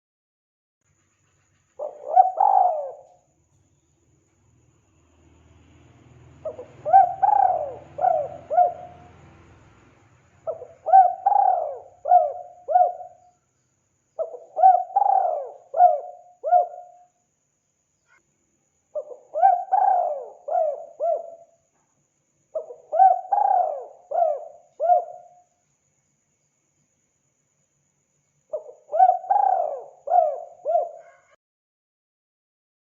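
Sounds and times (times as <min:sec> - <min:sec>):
dove cooing: 0:01.8 - 0:03.2, 0:06.4 - 0:09.3, 0:10.5 - 0:13.3, 0:14.2 - 0:17.0, 0:19.0 - 0:21.5, 0:22.6 - 0:25.4, 0:28.5 - 0:31.4.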